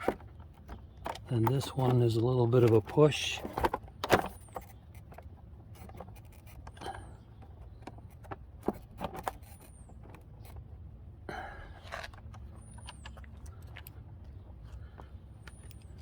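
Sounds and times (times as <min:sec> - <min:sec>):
bolts and washers clicking: 0:00.0 - 0:06.8.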